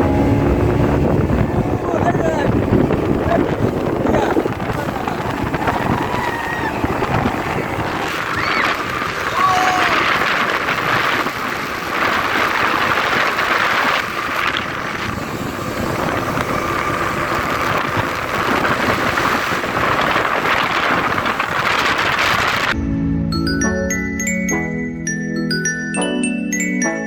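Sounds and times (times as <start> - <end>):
speed boat engine: 0.0 - 22.8
wind and water rushing: 0.0 - 22.8.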